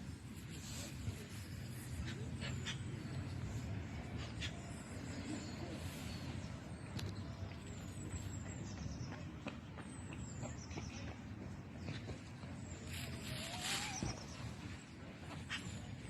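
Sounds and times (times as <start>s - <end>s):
high thin bird calls: 12.9s - 14.5s.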